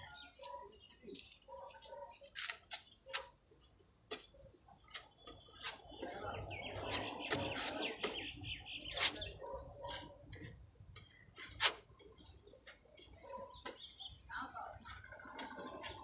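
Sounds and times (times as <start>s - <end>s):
small birds chirping: 0.0s - 11.3s, 12.1s - 16.0s
scratchy rasp: 5.4s - 8.2s, 8.8s - 11.9s.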